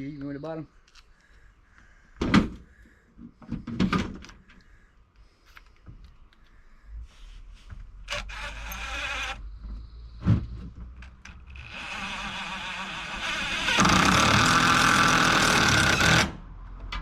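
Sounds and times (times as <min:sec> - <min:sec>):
power drill driving screws: 0:08.1 - 0:09.4, 0:11.6 - 0:16.4.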